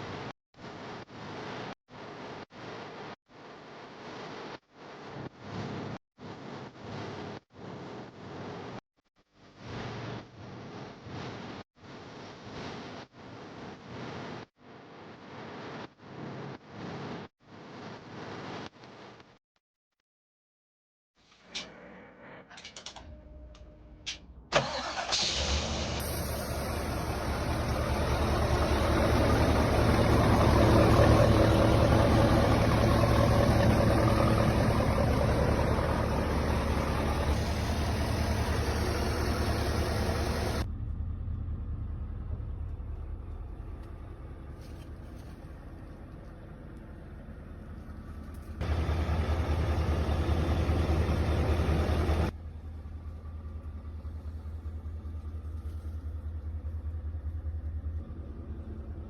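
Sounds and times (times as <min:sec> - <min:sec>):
diesel engine idling: 0:24.6 - 0:59.0.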